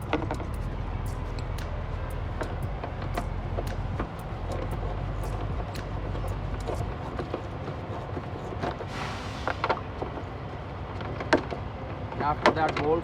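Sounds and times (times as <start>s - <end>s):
hand tools clicking and knocking: 0.0s - 8.9s
low rumble: 0.0s - 10.5s.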